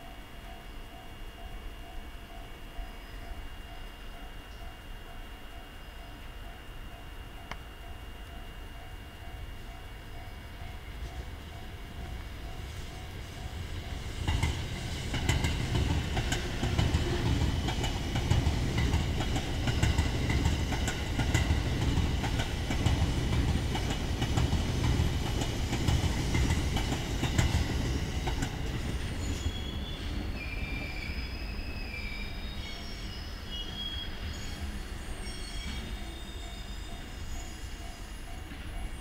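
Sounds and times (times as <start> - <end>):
train wheels rumbling on rail: 8.4 - 39.0
wheels clacking over rail joints: 14.3 - 29.0
high wheel squeal: 28.9 - 39.0.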